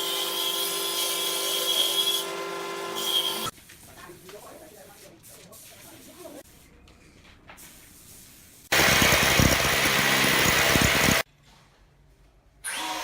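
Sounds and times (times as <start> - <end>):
power tool motor running: 8.7 - 11.2.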